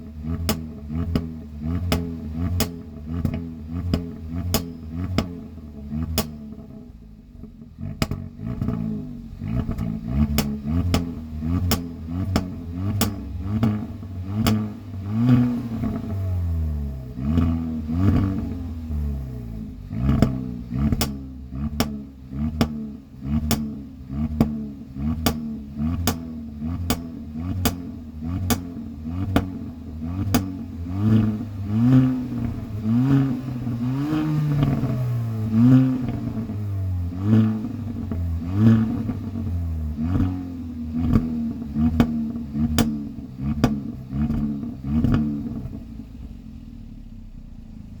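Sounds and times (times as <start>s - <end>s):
car engine idling: 0.0s - 48.0s
car engine revving: 0.0s - 48.0s
exhaust pops: 0.0s - 48.0s.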